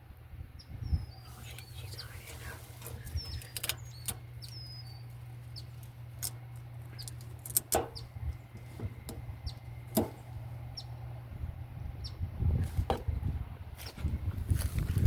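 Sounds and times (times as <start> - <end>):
low steady hum: 0.0 - 15.0
small birds chirping: 0.5 - 12.4
sharp clicks and knocks: 5.8 - 9.3, 9.9 - 10.2.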